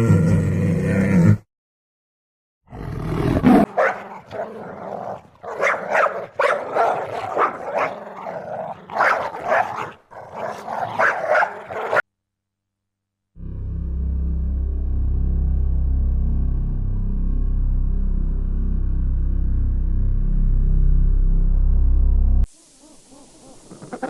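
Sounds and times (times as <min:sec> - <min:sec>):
dog growling and barking: 0:02.7 - 0:12.0.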